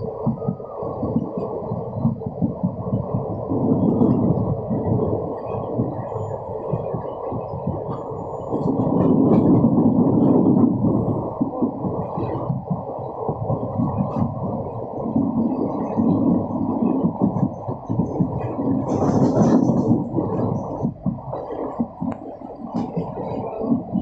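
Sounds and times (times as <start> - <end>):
train rumble: 0.0 - 24.0.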